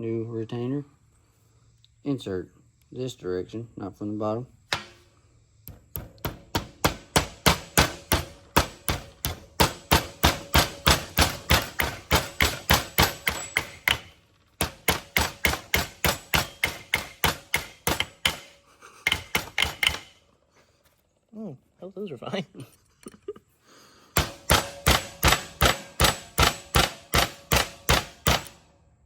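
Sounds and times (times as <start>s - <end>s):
hammer tapping on metal: 5.6s - 20.2s, 24.2s - 28.6s.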